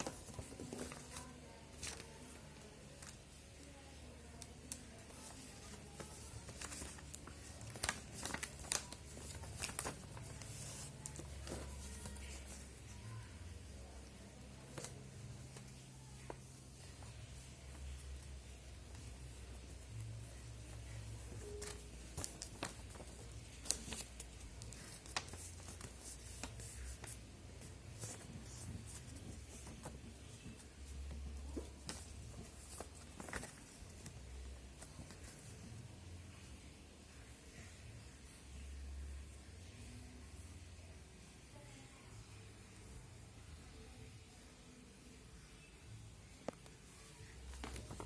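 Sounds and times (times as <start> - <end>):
paper rustling and snapping: 0.0 - 3.4, 4.4 - 12.8, 18.9 - 35.6, 47.5 - 48.0.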